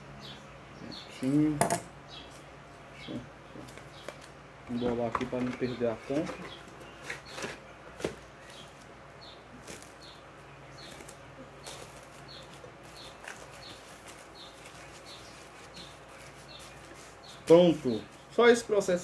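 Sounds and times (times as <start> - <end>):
small bird chirping: 8.4 - 18.4.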